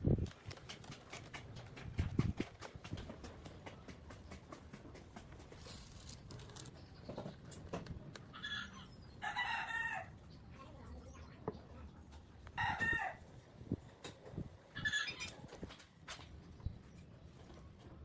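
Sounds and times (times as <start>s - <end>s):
chickens crowing: 8.3s - 10.2s, 12.6s - 13.3s, 14.7s - 15.4s.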